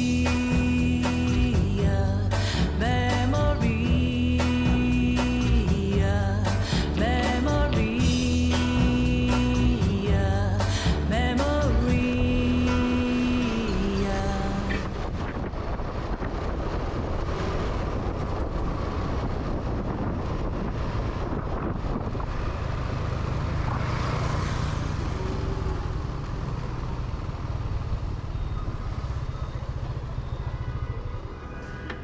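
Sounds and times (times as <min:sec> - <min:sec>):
motorbike engine running: 0:00.0 - 0:15.0, 0:17.8 - 0:31.5
wind noise on microphone: 0:00.0 - 0:24.0.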